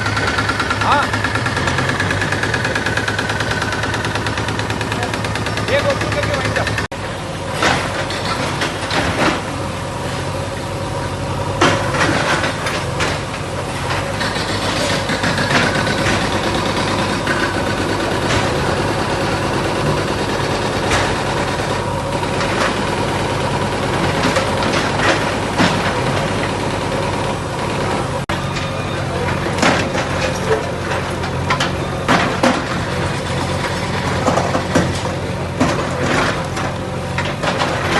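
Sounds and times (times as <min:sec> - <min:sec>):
bulldozer diesel engine running: 0:00.0 - 0:37.9
sharp knocks and clatters: 0:29.4 - 0:37.9.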